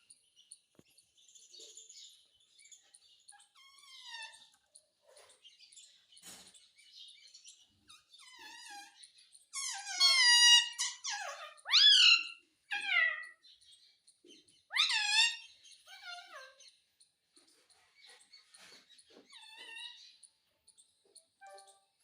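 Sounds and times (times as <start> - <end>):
parrot squawks and whistles: 9.6 - 13.3, 14.7 - 15.4.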